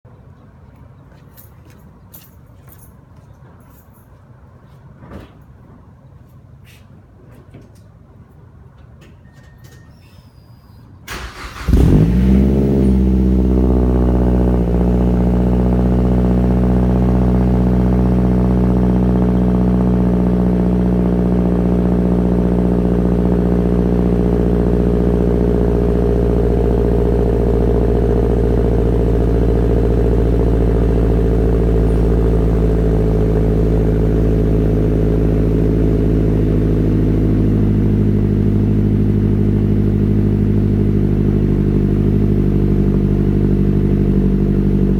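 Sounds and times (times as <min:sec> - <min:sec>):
car engine cold-starting: 0:11.0 - 0:44.9.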